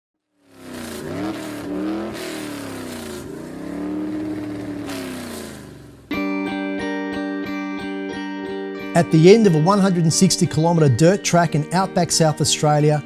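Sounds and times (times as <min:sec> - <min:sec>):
racing car engine accelerating: 0:00.3 - 0:06.1.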